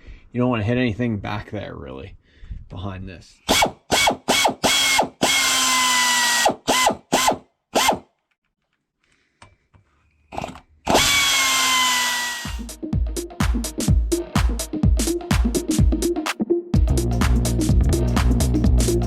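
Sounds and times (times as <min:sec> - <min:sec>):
air ratchet whining: 0:03.5 - 0:08.1, 0:10.3 - 0:12.6
rhythmic background music: 0:12.6 - 0:19.0.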